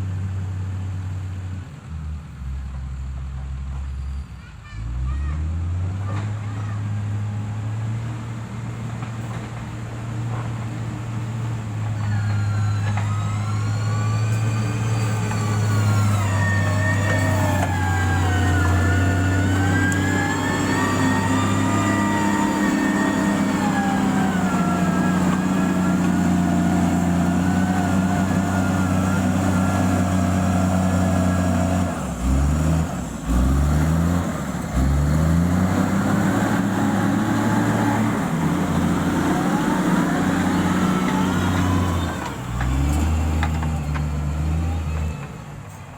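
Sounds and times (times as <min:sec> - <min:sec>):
diesel engine running: 0:00.0 - 0:45.9
rising and falling whine: 0:11.5 - 0:33.3, 0:34.9 - 0:45.1.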